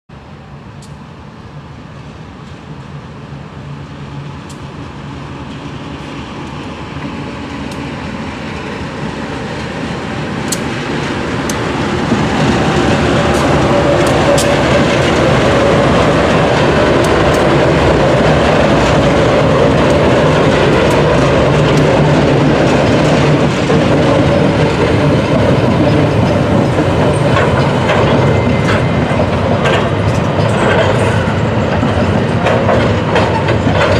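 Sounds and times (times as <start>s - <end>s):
diesel locomotive hum: 0.1s - 33.9s
scattered clicks: 10.4s - 10.7s, 13.3s - 15.5s, 16.5s - 17.7s, 18.7s - 23.2s
wagon wheels clattering on rails: 10.9s - 33.9s.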